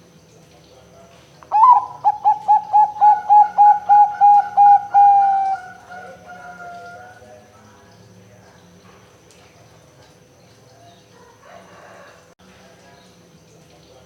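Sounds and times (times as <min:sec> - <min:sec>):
dove cooing: 0:01.5 - 0:07.2.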